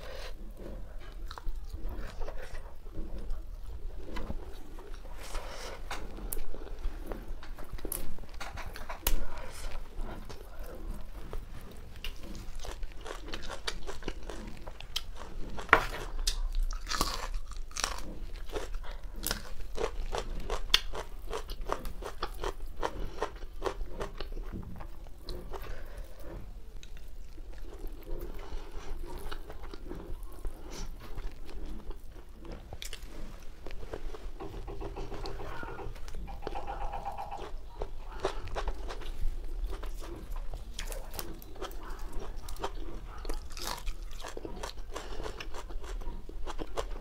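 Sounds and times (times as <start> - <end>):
person chewing and crunching food: 0.0 - 47.0.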